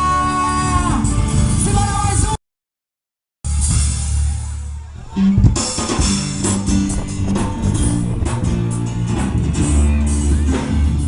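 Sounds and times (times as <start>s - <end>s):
band playing instrumental: 0.0s - 2.4s, 3.5s - 11.0s
held low bass note: 3.5s - 10.6s.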